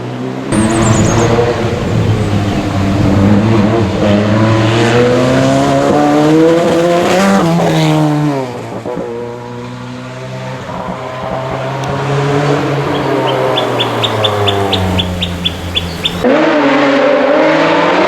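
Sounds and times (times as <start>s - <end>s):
rally car engine at full throttle: 0.0s - 18.0s.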